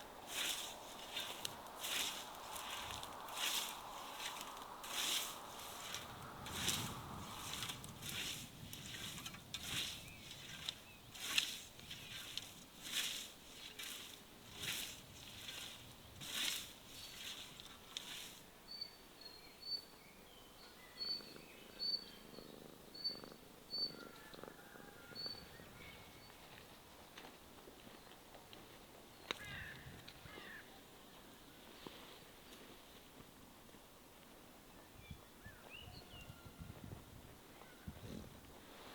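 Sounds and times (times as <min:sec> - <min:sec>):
rasping scraping strokes: 0:00.3 - 0:18.4
bird chirping: 0:18.7 - 0:24.4, 0:25.0 - 0:26.4.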